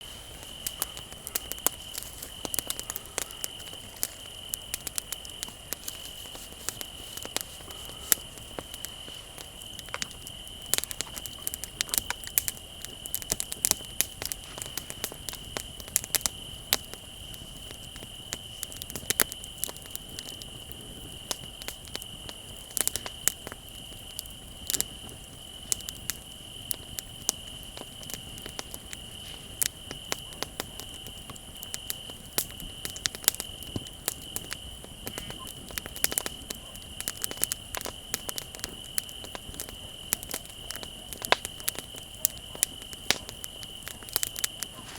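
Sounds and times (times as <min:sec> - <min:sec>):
bonfire crackling and popping: 0:00.0 - 0:44.9
crickets trilling: 0:00.0 - 0:44.9.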